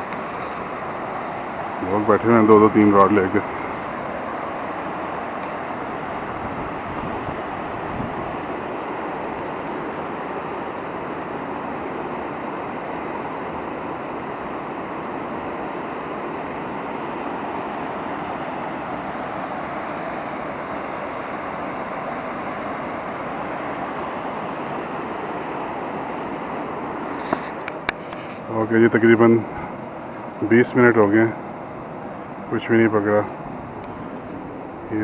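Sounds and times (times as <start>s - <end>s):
steady rushing noise: 0.0s - 35.0s.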